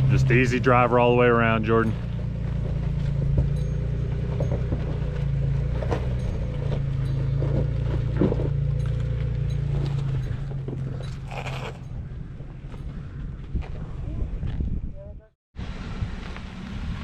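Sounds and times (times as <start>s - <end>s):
car engine running low: 0.0s - 14.7s, 15.6s - 17.0s
knocks and creaks: 1.9s - 14.8s.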